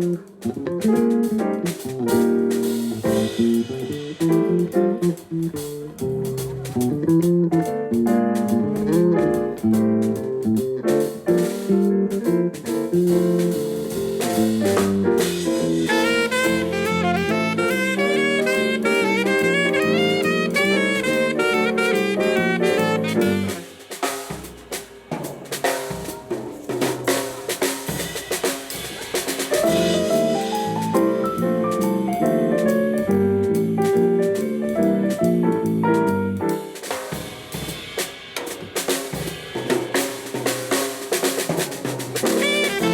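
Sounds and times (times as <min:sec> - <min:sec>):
live band playing: 0:00.0 - 0:38.1, 0:39.8 - 0:42.9
drum kit: 0:00.0 - 0:42.9
fast melodic lead line: 0:15.6 - 0:23.6.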